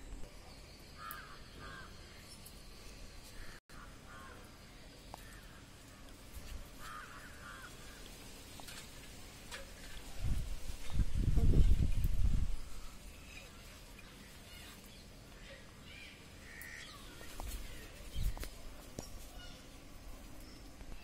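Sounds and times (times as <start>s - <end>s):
faint caw-like bird calls: 1.0s - 2.2s, 3.2s - 6.2s, 6.8s - 8.2s, 14.4s - 18.3s.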